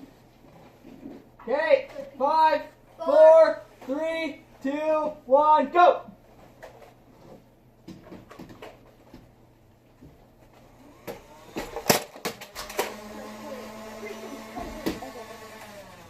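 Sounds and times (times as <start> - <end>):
electric motor whirring: 10.7 - 11.9, 12.5 - 16.0.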